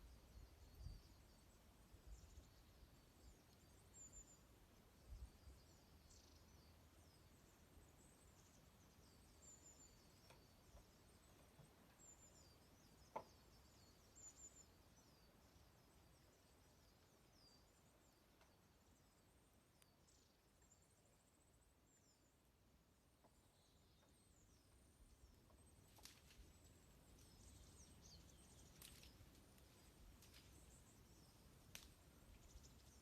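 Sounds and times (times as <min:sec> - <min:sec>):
small birds chirping: 0:00.0 - 0:33.0
wood fire crackle: 0:25.9 - 0:27.3, 0:28.4 - 0:33.0.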